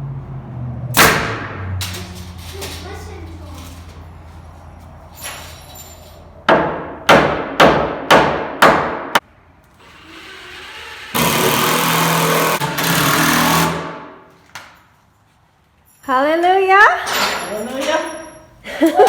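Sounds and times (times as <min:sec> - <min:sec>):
hammer striking nails into wood: 0:06.5 - 0:09.2.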